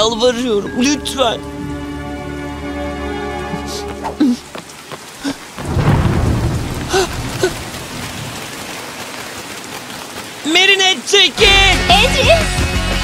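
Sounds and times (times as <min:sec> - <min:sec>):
rain falling: 0:00.0 - 0:13.0
thunder rumble: 0:05.2 - 0:10.2.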